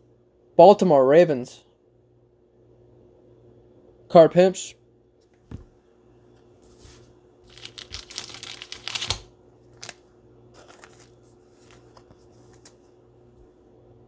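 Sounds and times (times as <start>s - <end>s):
trading cards shuffling: 6.7s - 13.0s.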